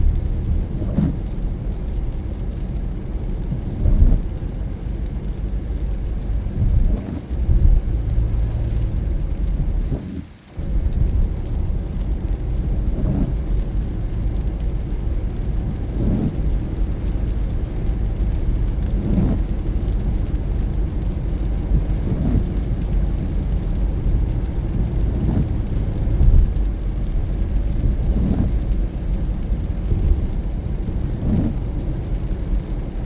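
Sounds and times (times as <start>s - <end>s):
road and engine rumble: 0.0s - 33.0s.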